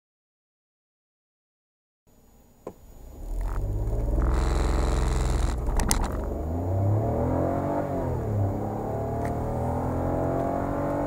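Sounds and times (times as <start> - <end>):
car engine accelerating: 3.0 - 11.0.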